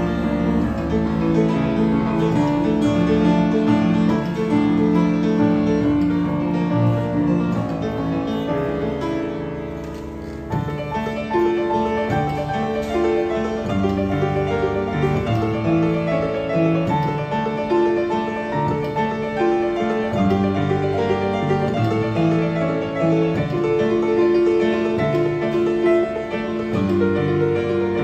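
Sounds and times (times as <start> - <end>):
acoustic piano melody: 0.0 - 28.0.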